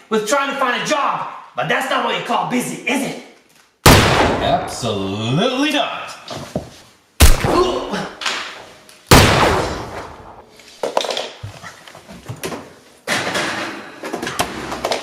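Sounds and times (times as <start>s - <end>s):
loud slams: 3.9s - 4.8s, 7.2s - 8.5s, 9.1s - 10.4s
person's voice: 4.4s - 6.2s.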